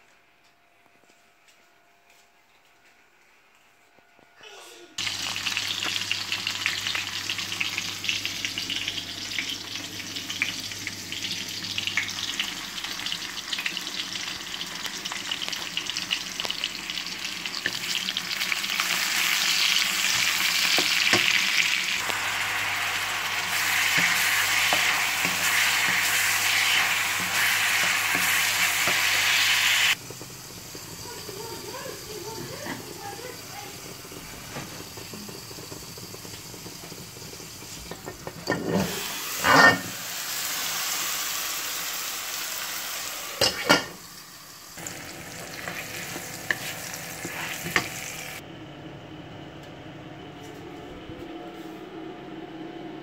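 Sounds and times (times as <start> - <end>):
onion sizzling in hot oil: 5.0 - 48.4
wooden spatula scraping wok: 45.6 - 48.2.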